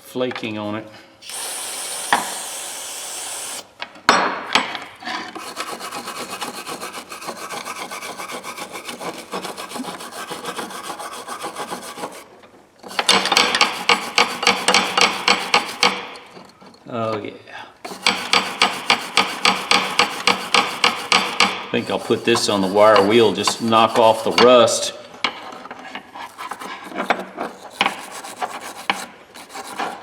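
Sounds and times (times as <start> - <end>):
aerosol spray hiss: 1.2 - 3.7
scrubbing on a metal wrench: 5.4 - 12.2, 12.9 - 16.7, 17.9 - 24.9, 26.2 - 30.0.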